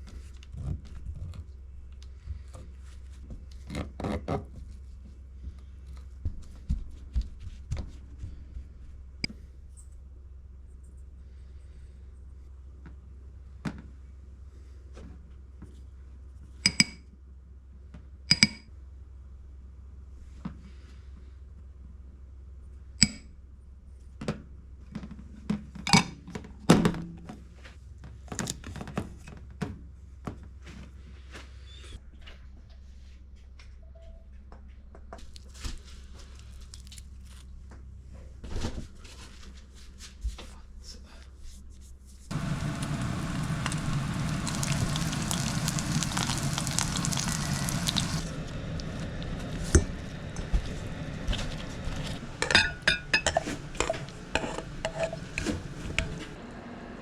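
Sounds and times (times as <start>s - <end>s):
steady low hum: 42.3s - 56.4s.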